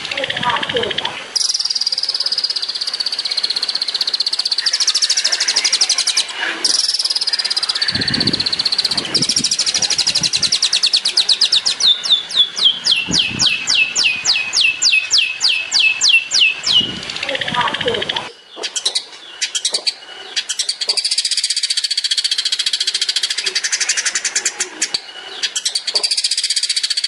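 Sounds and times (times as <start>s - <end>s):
bird singing rapid trill: 0.0s - 27.0s.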